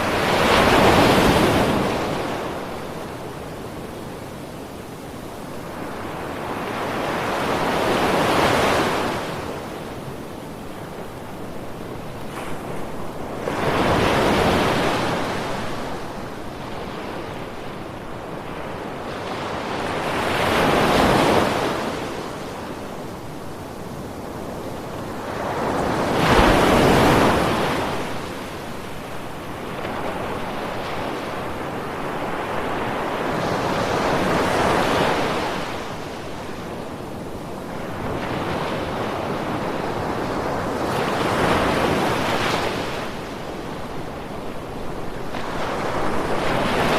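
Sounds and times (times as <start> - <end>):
ocean waves breaking on shore: 0.0 - 46.9.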